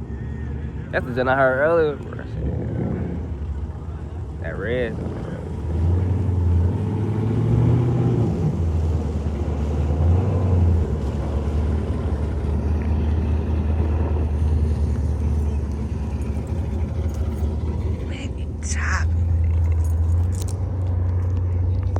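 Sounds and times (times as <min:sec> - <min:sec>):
car engine running: 0:00.0 - 0:21.9.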